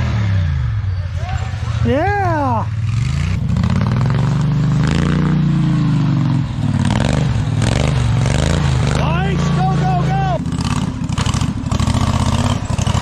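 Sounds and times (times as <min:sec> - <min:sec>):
lawn tractor engine revving: 0:02.8 - 0:13.0.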